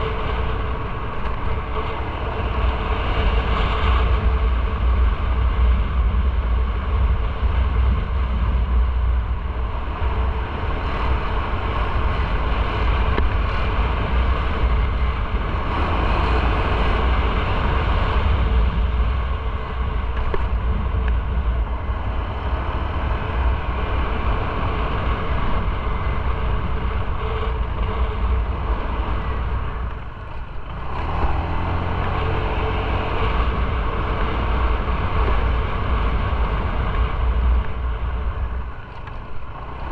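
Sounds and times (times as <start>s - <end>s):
motorcycle engine rumble: 0.0s - 39.9s
wind and road noise: 0.0s - 39.9s.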